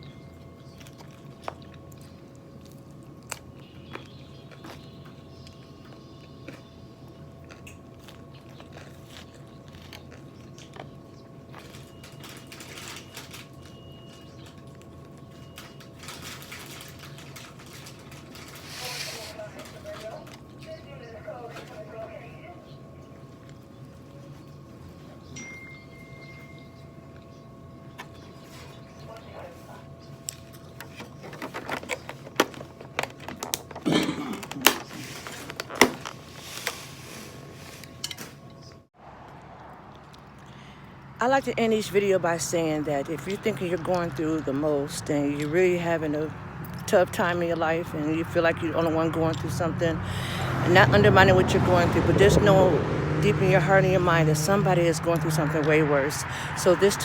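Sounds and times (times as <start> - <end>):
close chewing with crunches: 0.0 - 20.7, 39.2 - 41.2
person chewing: 0.7 - 4.8, 5.4 - 11.7.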